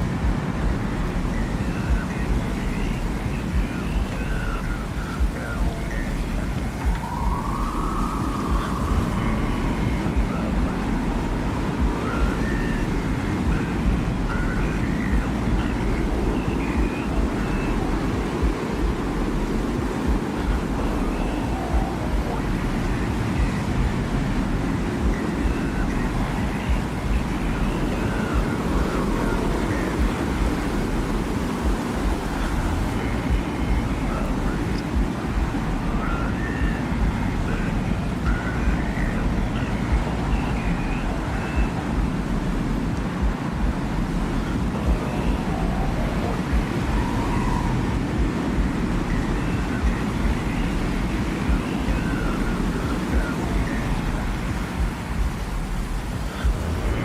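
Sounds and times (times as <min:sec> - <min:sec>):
faint higher tones: 0:00.0 - 0:57.0
low rumbling wind: 0:00.0 - 0:57.0.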